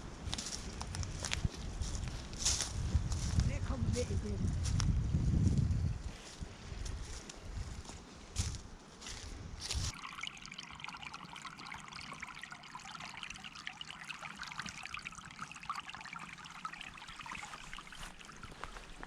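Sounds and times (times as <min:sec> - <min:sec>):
stream babbling over stones: 0:09.9 - 0:19.0.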